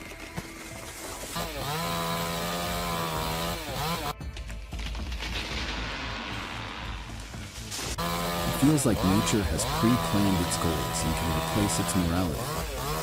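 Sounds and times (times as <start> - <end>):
chainsaw revving: 1.2 - 4.2, 8.0 - 13.0.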